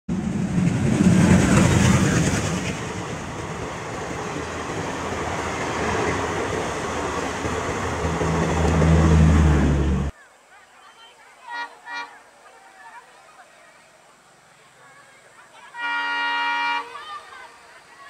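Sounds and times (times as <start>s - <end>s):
train wheels rumbling on rails: 0.1s - 10.1s.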